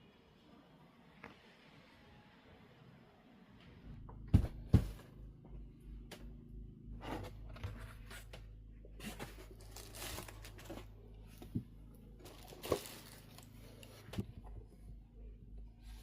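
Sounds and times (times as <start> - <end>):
low steady hum: 0.0 - 16.0
rustling and crinkling: 6.0 - 15.0.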